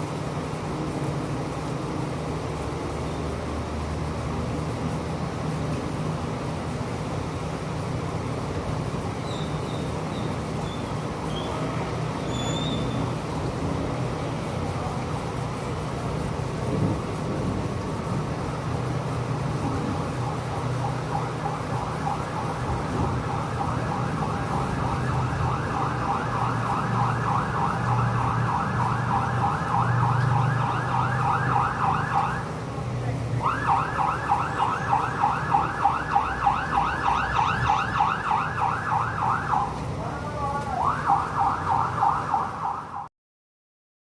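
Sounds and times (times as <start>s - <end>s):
emergency siren yelping: 19.3s - 32.6s, 33.4s - 43.1s.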